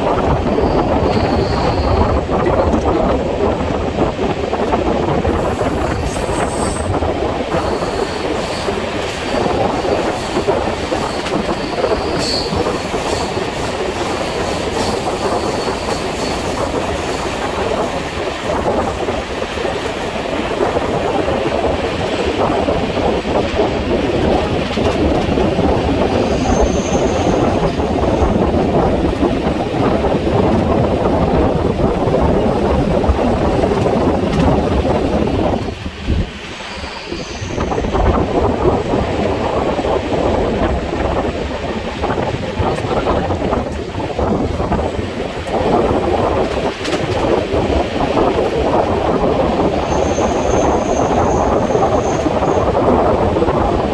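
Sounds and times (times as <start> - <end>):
train wheels clattering on rails: 0.0 - 53.9
high wheel squeal: 0.4 - 2.2, 5.3 - 13.4, 26.2 - 28.2, 36.5 - 38.1, 49.8 - 52.7.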